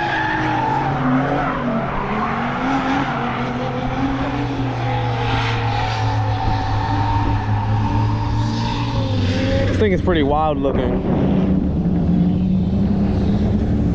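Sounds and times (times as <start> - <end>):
car engines revving: 0.0 - 13.9
tyres skidding: 0.0 - 13.9
low engine hum: 0.7 - 13.9.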